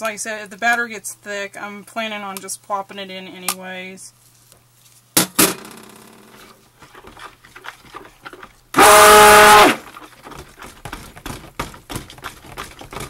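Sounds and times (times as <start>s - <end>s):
stick blender whining: 8.8s - 9.9s.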